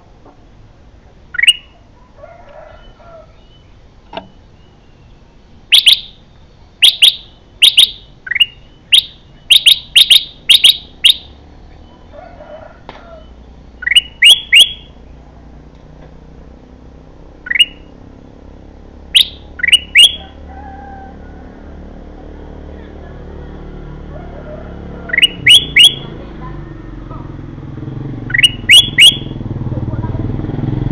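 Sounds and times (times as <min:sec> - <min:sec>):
bird chirping sharply: 0:01.3 - 0:01.8, 0:02.8 - 0:12.1, 0:13.1 - 0:15.0, 0:17.4 - 0:18.0, 0:19.1 - 0:20.3, 0:25.1 - 0:26.2, 0:28.2 - 0:29.4.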